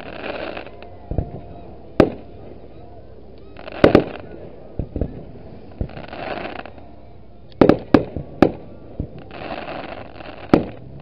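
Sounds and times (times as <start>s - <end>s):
fireworks shells bursting: 3.5s - 6.8s, 7.5s - 11.0s.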